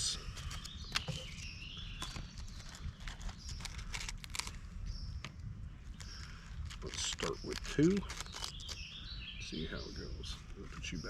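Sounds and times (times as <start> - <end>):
lettuce snapping and crunching: 2.0 - 4.6, 6.0 - 8.9.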